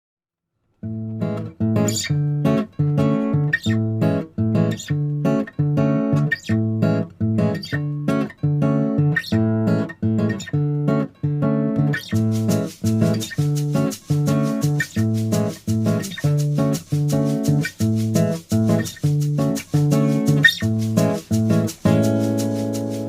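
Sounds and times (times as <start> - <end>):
acoustic guitar strumming chords: 0.9 - 23.0.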